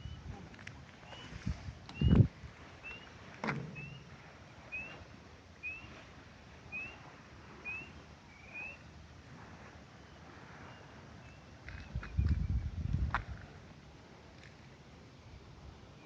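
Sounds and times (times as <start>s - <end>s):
bird whistling rising note: 3.8s - 5.0s, 5.6s - 6.0s, 6.7s - 8.9s.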